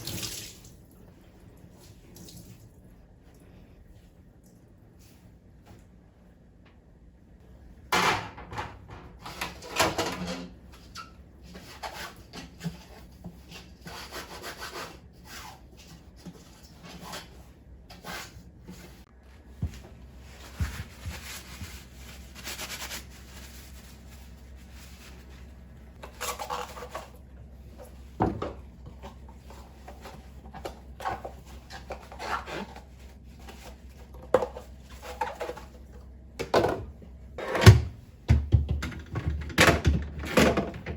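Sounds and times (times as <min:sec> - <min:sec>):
objects knocking and clattering: 0:36.4 - 0:40.9.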